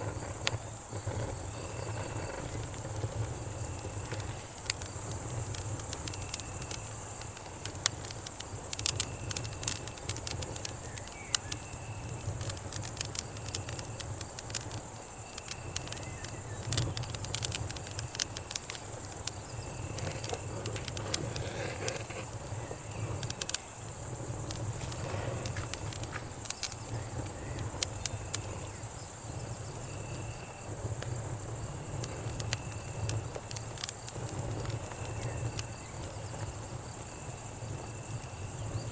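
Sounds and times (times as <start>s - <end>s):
campfire crackling: 0.0s - 38.9s
cricket chirp: 0.0s - 38.9s
insects droning: 0.0s - 38.9s.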